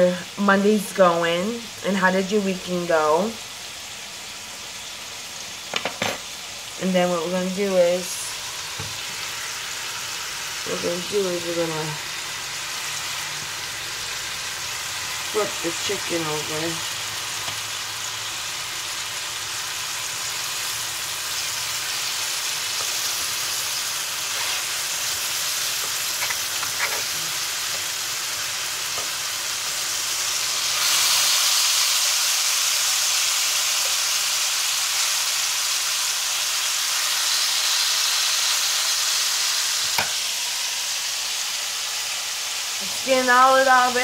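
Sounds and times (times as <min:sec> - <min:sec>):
chicken frying in hot oil: 0:00.0 - 0:44.0.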